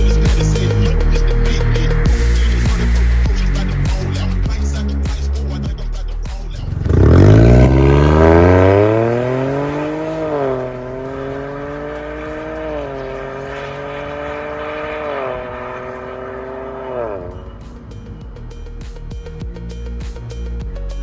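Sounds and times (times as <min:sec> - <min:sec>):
car engine accelerating hard: 0:06.5 - 0:19.0.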